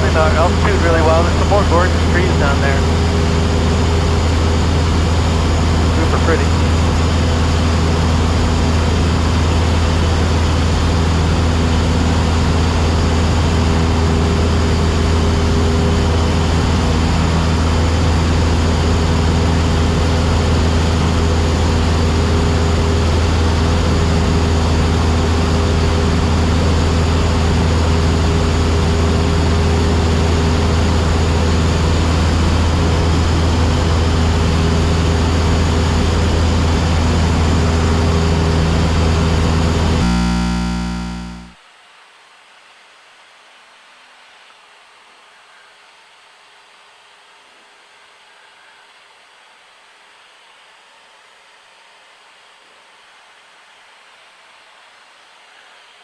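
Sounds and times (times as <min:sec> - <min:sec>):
light aircraft engine droning: 0:00.0 - 0:41.4.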